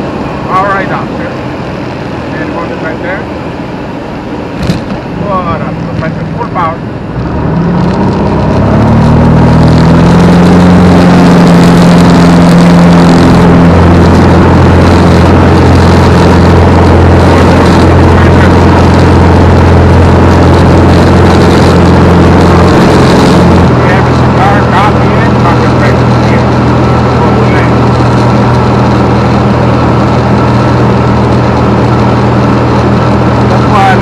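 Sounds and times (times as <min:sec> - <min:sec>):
propeller plane engine at full power: 0:00.0 - 0:34.0.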